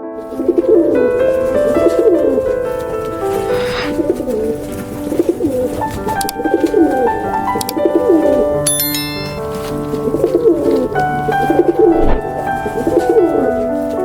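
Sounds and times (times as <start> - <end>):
background music: 0.2 - 14.0
pigeons cooing: 0.3 - 8.6.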